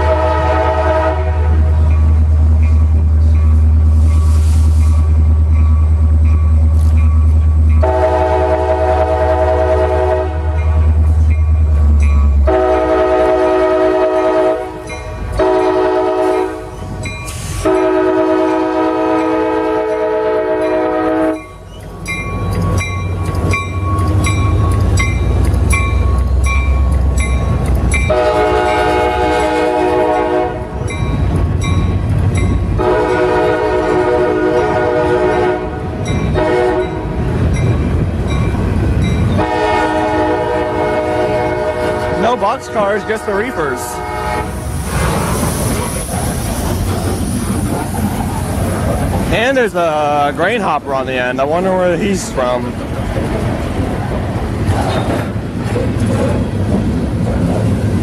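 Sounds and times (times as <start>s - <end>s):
locomotive air horn blasts: 0.0s - 1.7s, 7.8s - 10.6s, 12.4s - 16.7s, 17.5s - 21.4s, 28.1s - 30.7s, 32.8s - 37.2s, 39.4s - 44.6s
locomotive and wheels rumbling: 0.0s - 58.0s.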